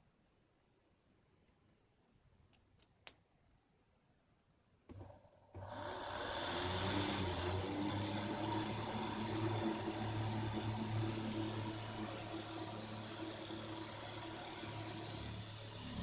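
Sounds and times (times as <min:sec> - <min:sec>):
electric fan running: 0:05.0 - 0:16.0.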